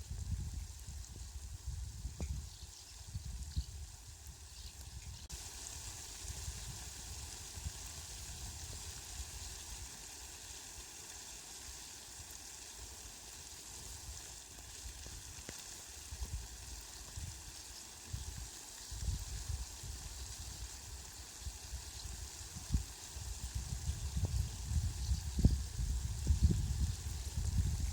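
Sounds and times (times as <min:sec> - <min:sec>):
rain falling: 0:05.3 - 0:26.7.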